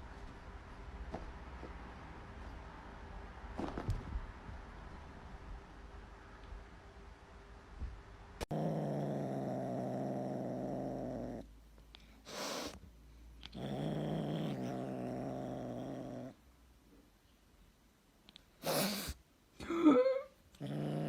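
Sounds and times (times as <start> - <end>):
cat breathy hissing: 12.1 - 12.8, 18.6 - 19.2.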